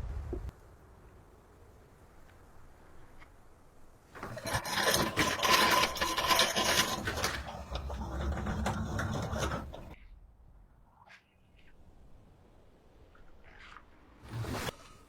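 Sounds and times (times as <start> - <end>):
scraping noise: 4.2 - 10.0.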